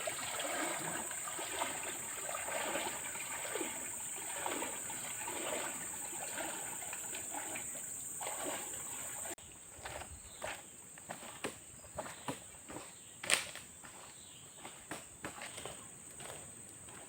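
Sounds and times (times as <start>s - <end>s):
water splashing and trickling: 0.0s - 10.0s.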